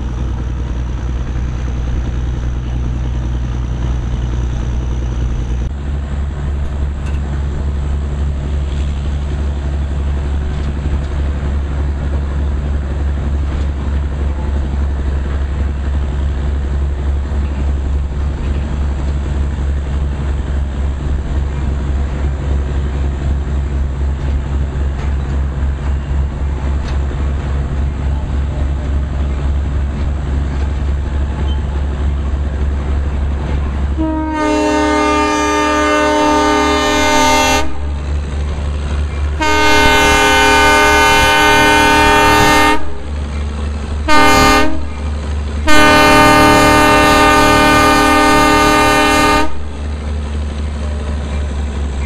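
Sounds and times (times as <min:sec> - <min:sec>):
train rumbling: 0:00.0 - 0:52.0
train horn blasts: 0:33.9 - 0:38.0, 0:39.4 - 0:43.1, 0:44.1 - 0:45.0, 0:45.6 - 0:49.7.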